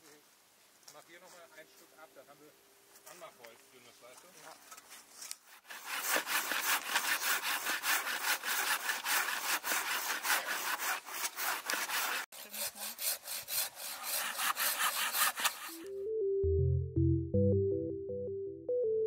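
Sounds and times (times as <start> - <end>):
hand saw cutting log: 5.2 - 15.9.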